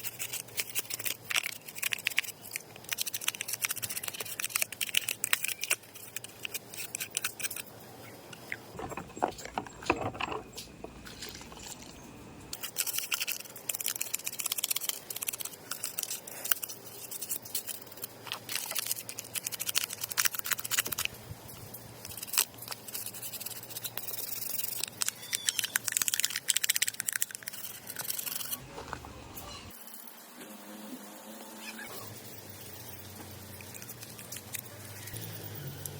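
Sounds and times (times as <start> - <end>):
small hard parts clicking: 0.0 - 28.6
dull handling noise: 8.2 - 12.6.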